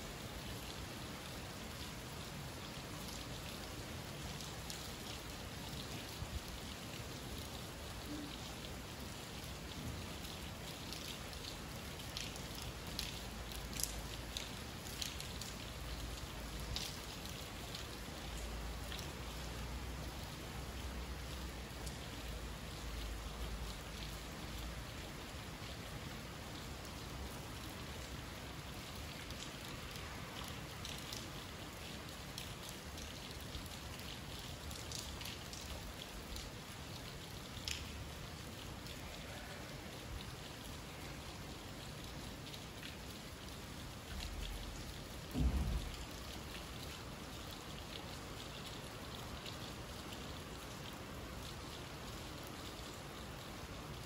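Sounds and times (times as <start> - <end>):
rain falling: 0.0 - 54.0
short thump: 45.3 - 46.0.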